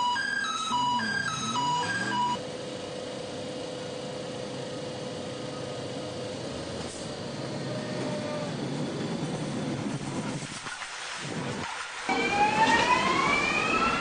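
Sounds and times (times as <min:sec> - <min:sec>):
train running hum: 0:00.0 - 0:14.0.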